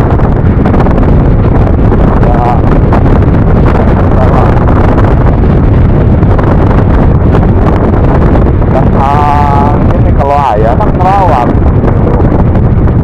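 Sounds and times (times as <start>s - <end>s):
road noise: 0.0s - 13.0s
wind rush over microphone: 0.0s - 13.0s.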